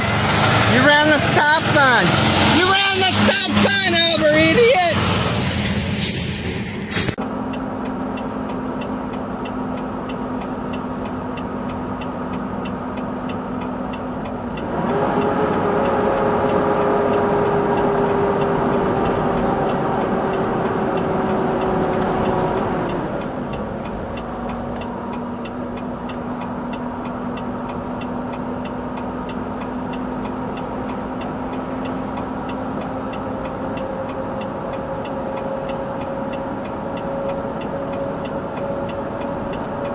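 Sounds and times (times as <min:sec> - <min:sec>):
steady ticking: 0:07.8 - 0:39.9.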